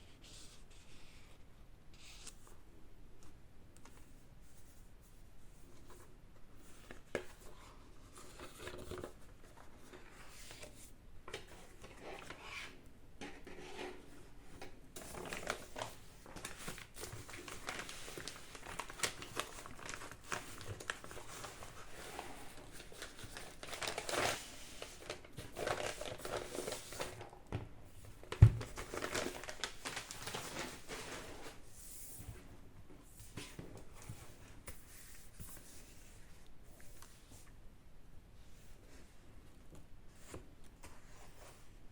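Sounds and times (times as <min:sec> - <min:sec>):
paper crinkling and rustling: 0:05.6 - 0:12.8, 0:14.6 - 0:31.7.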